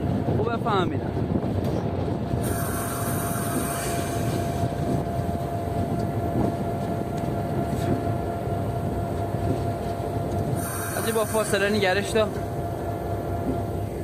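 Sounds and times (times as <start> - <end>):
diesel locomotive rumble: 0.0 - 14.0
thin whine: 2.4 - 14.0.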